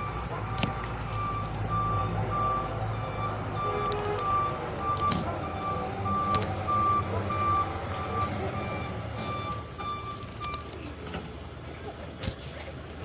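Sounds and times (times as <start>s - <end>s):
truck reversing alarm beeping: 0.0s - 10.9s
truck engine rumble: 0.0s - 13.0s.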